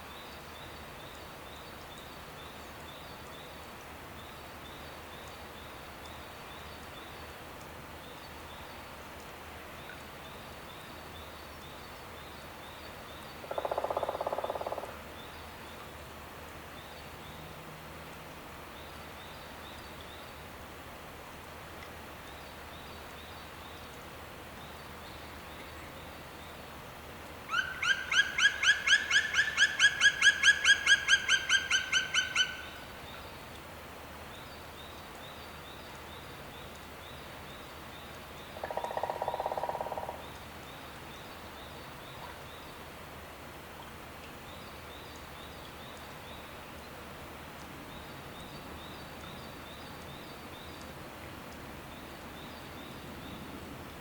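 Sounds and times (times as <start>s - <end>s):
faint outdoor hiss: 0.0s - 54.0s.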